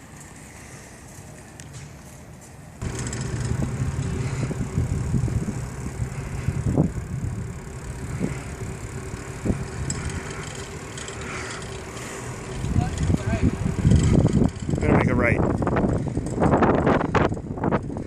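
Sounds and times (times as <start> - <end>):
wind buffeting on microphone: 2.8 - 10.4, 12.3 - 18.0
low rumble: 2.8 - 18.0.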